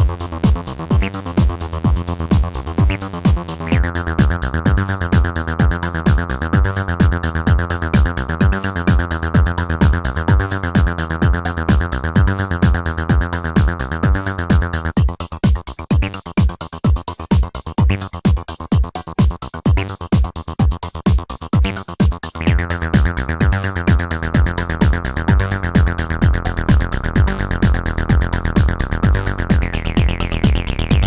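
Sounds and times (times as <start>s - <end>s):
squelchy synth bassline: 0.0s - 15.2s, 21.6s - 31.0s
drum machine beat: 0.0s - 31.0s.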